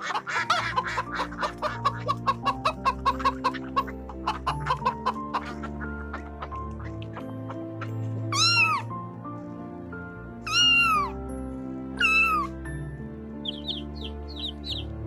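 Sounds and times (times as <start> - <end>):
background music: 0.0 - 15.0
cat meowing: 8.3 - 8.9, 10.4 - 11.2, 12.0 - 12.6.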